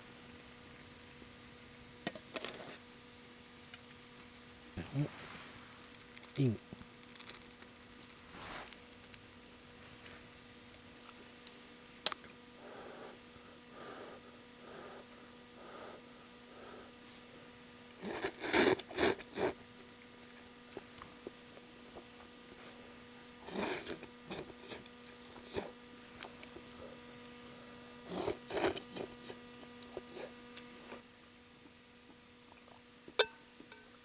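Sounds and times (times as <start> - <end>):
faint steady hum: 0.0 - 34.0
person slurping noodles: 18.0 - 19.6, 23.4 - 25.8, 28.1 - 29.4.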